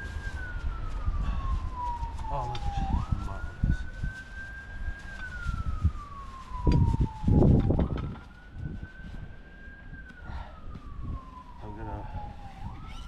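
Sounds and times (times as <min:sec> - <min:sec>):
rustling: 0:00.0 - 0:10.2
siren wailing: 0:00.0 - 0:13.0.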